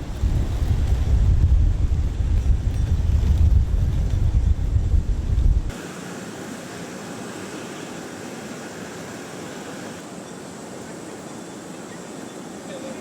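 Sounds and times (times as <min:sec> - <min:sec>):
wind buffeting microphone: 0:00.0 - 0:05.7.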